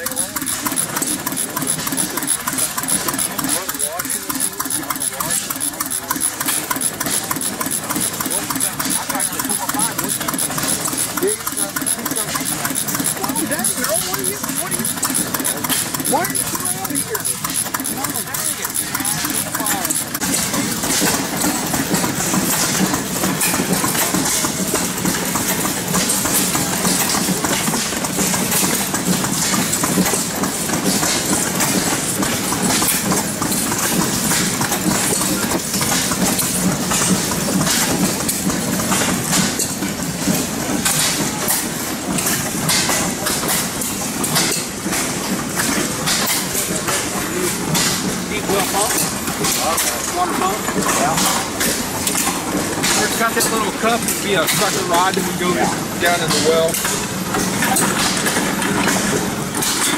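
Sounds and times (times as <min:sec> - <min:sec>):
clatter of engine knocks: 0:00.0 - 0:59.9
stationary gas engines running: 0:00.0 - 0:59.9.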